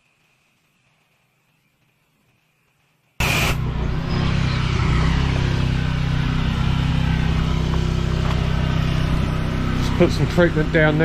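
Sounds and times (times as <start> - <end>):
water spray hissing: 3.2 - 3.6
pressure washer engine hum: 3.2 - 4.1, 5.2 - 11.0.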